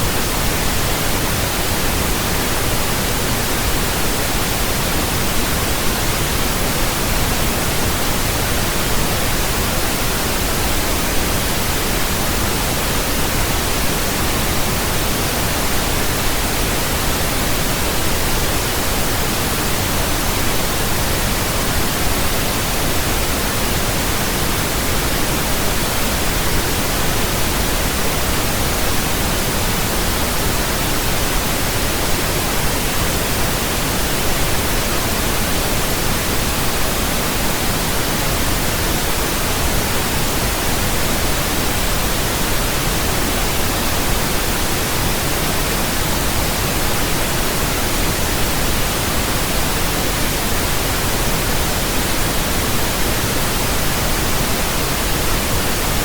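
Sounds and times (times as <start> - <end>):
pink noise hiss: 0.0 - 56.0.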